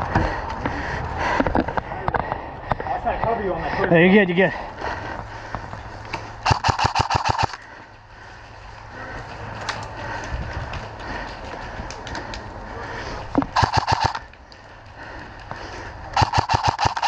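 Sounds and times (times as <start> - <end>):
airsoft gun full-auto burst: 6.4 - 7.6, 13.6 - 14.2, 16.2 - 17.0.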